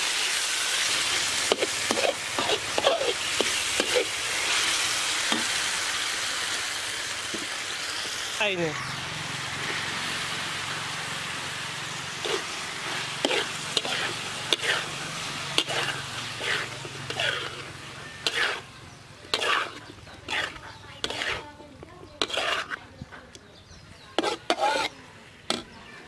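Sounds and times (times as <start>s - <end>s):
meat and mushrooms sizzling in wok: 0.0s - 23.1s, 23.9s - 26.0s
metal spatula scraping pan: 1.4s - 5.5s, 12.2s - 23.0s, 24.1s - 25.7s.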